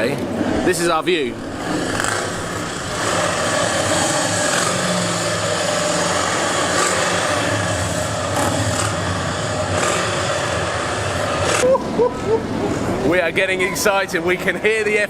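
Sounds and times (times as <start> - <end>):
motorcycle engines idling: 0.0 - 11.6.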